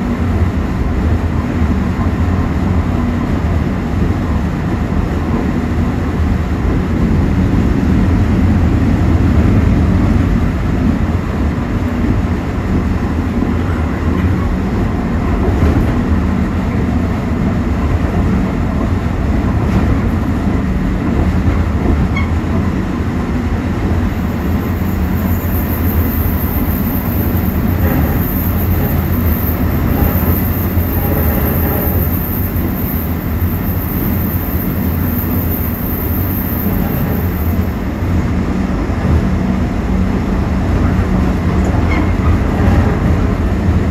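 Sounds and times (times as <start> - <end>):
train wheels rumbling on rails: 0.0 - 43.9
train car body rattling: 23.9 - 37.8.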